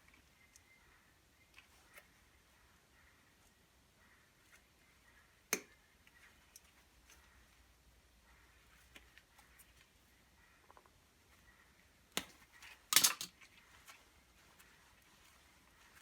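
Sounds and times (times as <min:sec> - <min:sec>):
clatter of loud clicks: 0:12.9 - 0:13.3.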